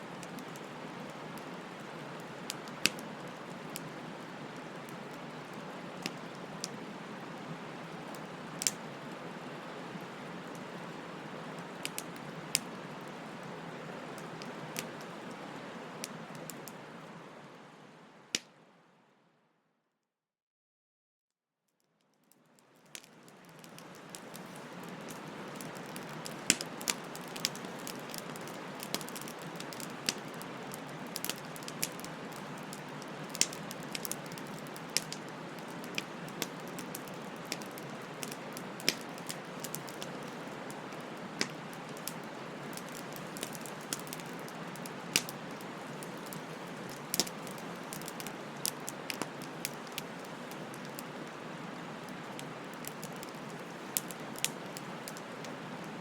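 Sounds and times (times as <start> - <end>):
bonfire crackling and popping: 0.1 - 16.9, 22.2 - 56.0.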